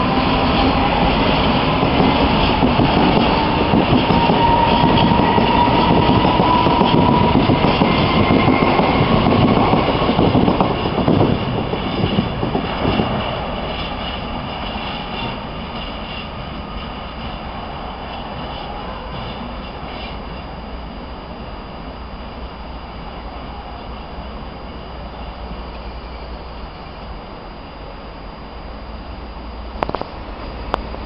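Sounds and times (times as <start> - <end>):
metallic wheel squeal: 2.2 - 10.0, 11.8 - 20.6.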